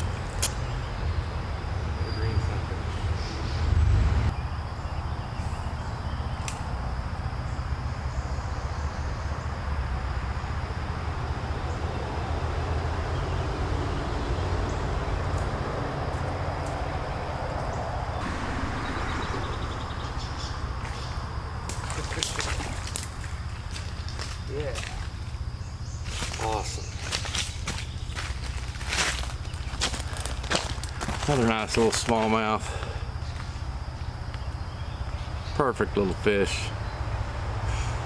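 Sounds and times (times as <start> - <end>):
creek water running: 18.2 - 33.0.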